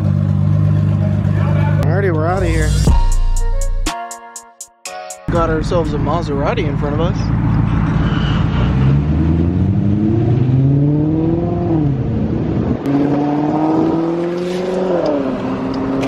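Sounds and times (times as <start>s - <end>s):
car engine accelerating: 5.3s - 16.0s.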